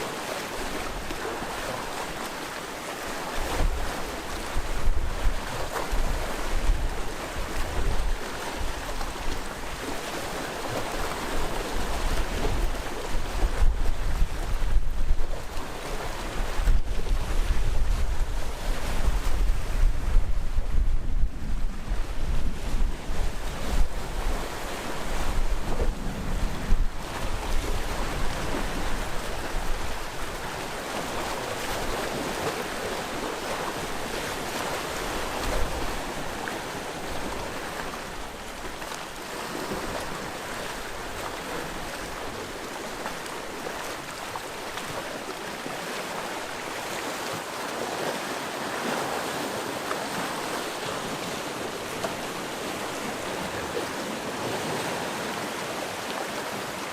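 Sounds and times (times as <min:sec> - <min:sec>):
sea waves washing onto shore: 0:00.0 - 0:56.9
wind buffeting microphone: 0:11.8 - 0:30.6.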